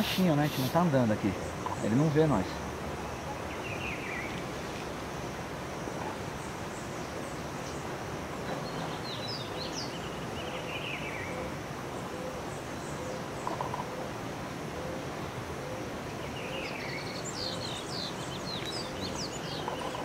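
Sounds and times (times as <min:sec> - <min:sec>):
outdoor background noise: 0:00.0 - 0:20.0
bird chirps: 0:16.3 - 0:20.0.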